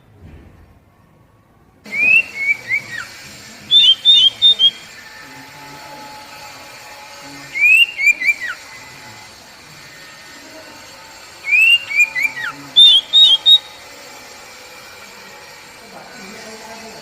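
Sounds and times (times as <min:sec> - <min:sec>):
bird singing whistled notes: 0:01.9 - 0:04.9, 0:07.5 - 0:08.7, 0:11.4 - 0:13.9.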